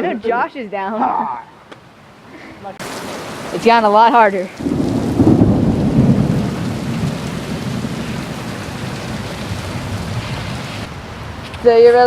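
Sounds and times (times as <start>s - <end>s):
heavy rain: 2.7s - 12.0s
thunder rumbling: 2.8s - 11.4s.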